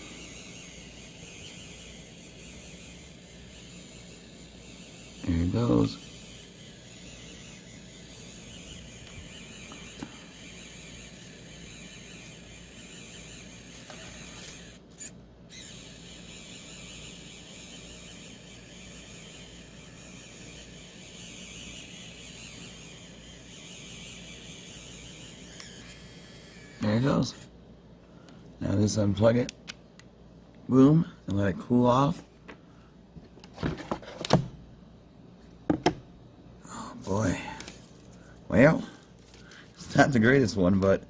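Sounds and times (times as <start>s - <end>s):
pen feed motor whirring: 0.0s - 27.5s.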